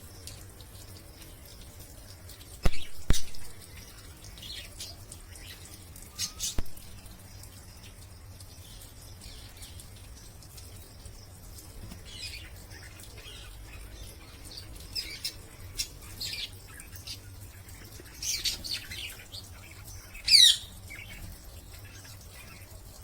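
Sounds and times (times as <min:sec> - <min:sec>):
parrots chirping: 0:20.2 - 0:20.7.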